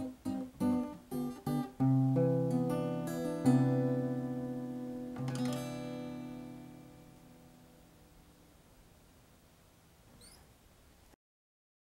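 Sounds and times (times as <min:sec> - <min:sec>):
acoustic guitar strummed chords: 0:00.0 - 0:08.5.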